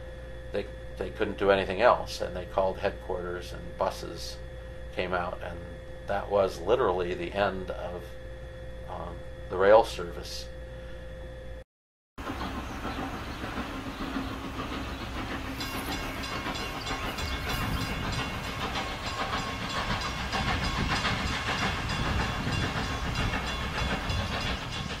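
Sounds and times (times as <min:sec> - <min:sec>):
train rumble and hiss: 0:00.0 - 0:08.2, 0:12.2 - 0:25.0
train wheels clattering: 0:12.2 - 0:25.0.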